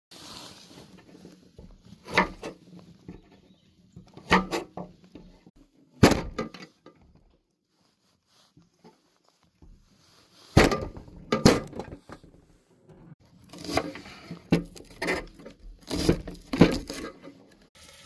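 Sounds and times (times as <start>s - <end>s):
sharp knocks and thuds: 6.0s - 6.6s, 10.6s - 12.2s.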